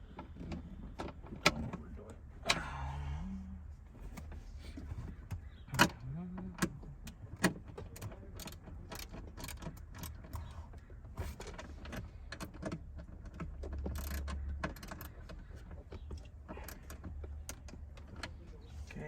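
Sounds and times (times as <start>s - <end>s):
rustling and clatter: 6.6s - 19.0s.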